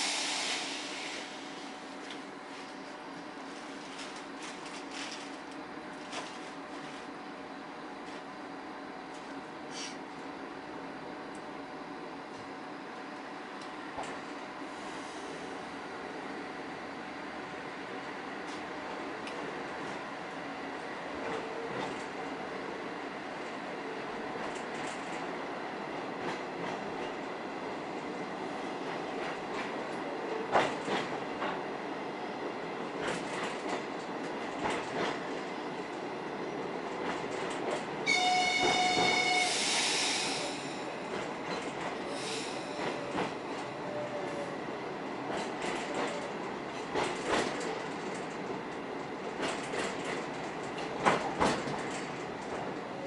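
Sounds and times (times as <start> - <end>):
rush of hiss: 0.0 - 1.6, 39.4 - 40.8, 42.1 - 42.8
train horn: 38.0 - 40.6
train wheels clacking over joints: 45.3 - 48.6, 49.3 - 52.8.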